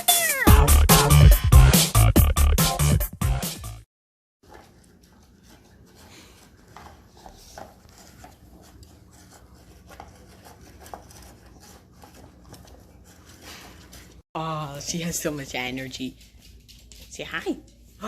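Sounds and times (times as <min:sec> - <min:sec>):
puppy rustling and tapping: 0:14.8 - 0:18.0.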